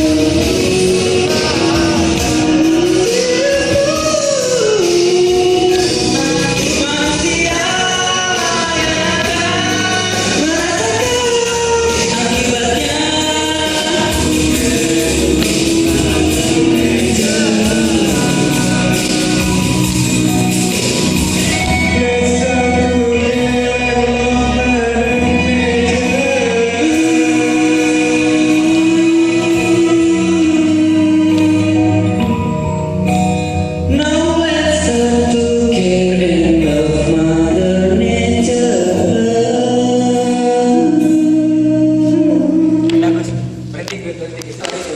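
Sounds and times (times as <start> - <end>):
sustained low bass voice: 0.0 - 33.1
person singing long notes: 0.0 - 43.6
full band playing: 0.0 - 44.9.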